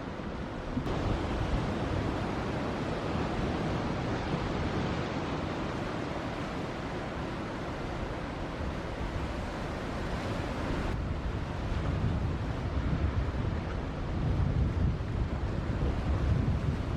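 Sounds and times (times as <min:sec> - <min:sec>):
waves breaking: 0:00.0 - 0:11.9
wind buffeting microphone: 0:00.1 - 0:16.9.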